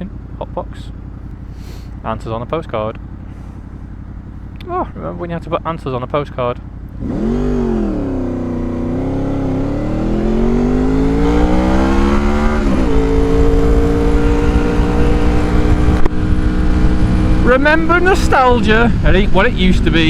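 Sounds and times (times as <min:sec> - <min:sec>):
motorcycle engine accelerating: 0:00.0 - 0:20.0
wind noise: 0:11.2 - 0:20.0.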